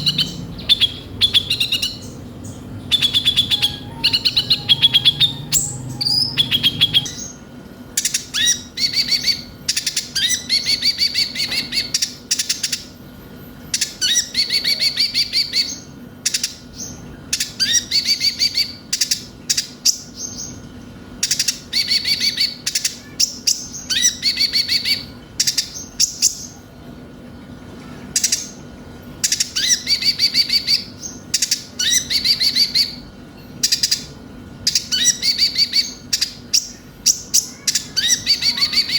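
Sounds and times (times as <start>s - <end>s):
sunbird singing chattering phrases: 0.0s - 13.0s, 13.7s - 26.7s, 29.2s - 38.9s
steady low hum: 0.0s - 38.9s.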